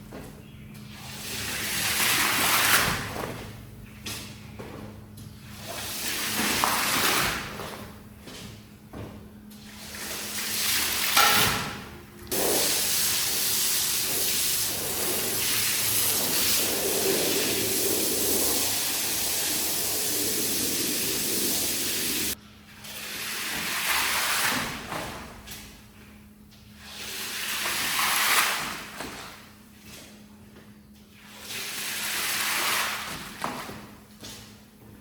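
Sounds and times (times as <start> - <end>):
water spraying onto rug: 12.3 - 22.4.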